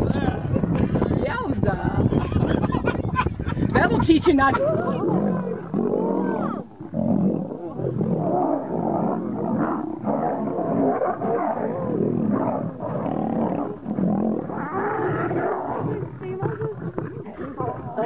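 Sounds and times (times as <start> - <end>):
lions roaring and growling: 4.6 - 18.0.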